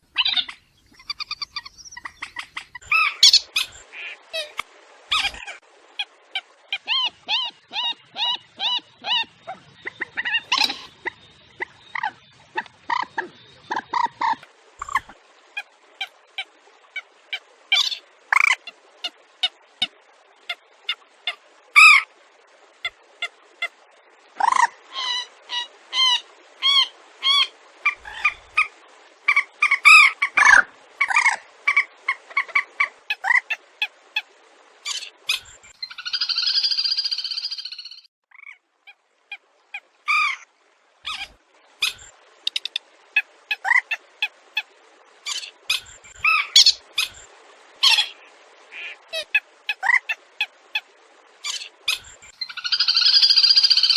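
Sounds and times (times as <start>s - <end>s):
buzzy wavering bird call: 51.4s - 53.9s.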